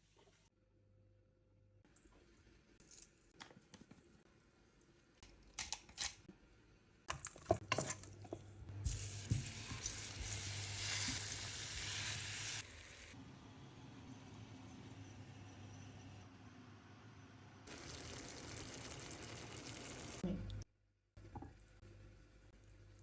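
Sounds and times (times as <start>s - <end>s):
food sizzling in hot oil: 8.8s - 13.2s, 17.7s - 20.2s.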